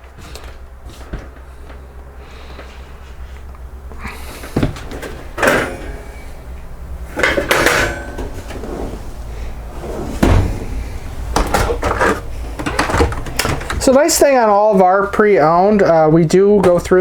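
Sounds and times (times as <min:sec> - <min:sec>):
cabinet doors opening and shutting: 0:04.4 - 0:06.4, 0:07.0 - 0:14.5.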